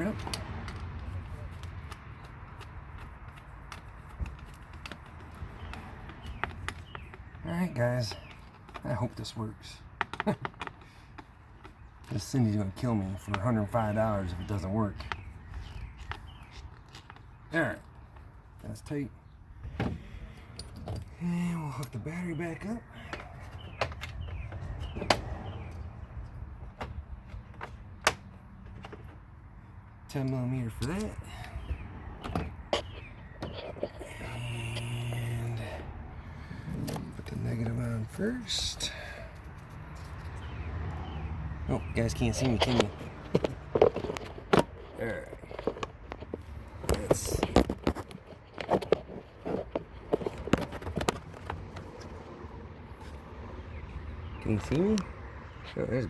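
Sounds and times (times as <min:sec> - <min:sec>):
handling knocks and clicks: 0:00.0 - 0:18.4, 0:23.1 - 0:29.4, 0:30.2 - 0:34.1, 0:41.8 - 0:52.3.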